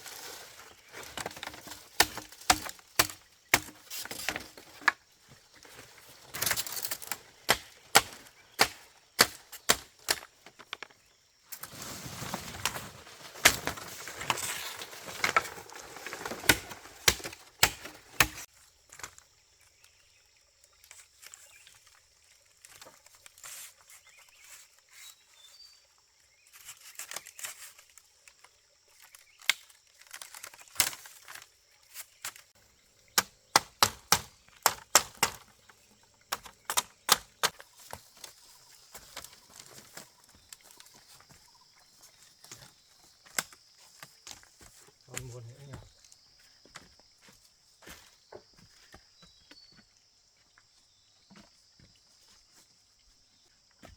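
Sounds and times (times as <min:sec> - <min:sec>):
sharp knocks and cracks: 0:01.1 - 0:05.0, 0:06.4 - 0:10.9, 0:13.4 - 0:18.5, 0:29.4 - 0:31.4, 0:33.1 - 0:38.3, 0:43.3 - 0:44.4.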